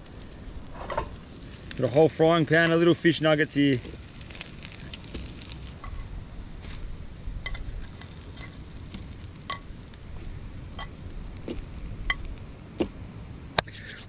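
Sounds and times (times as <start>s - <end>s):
nuggets sizzling in oil: 0.0s - 13.0s.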